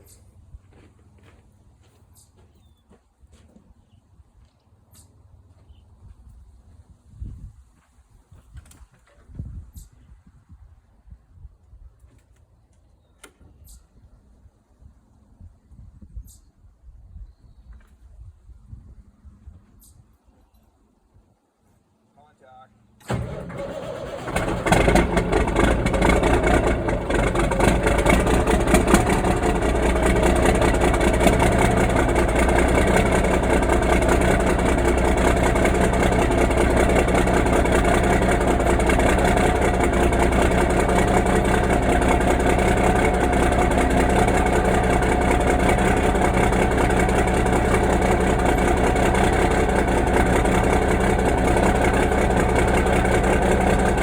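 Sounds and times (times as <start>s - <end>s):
diesel truck engine starting and idling: 23.0s - 54.0s.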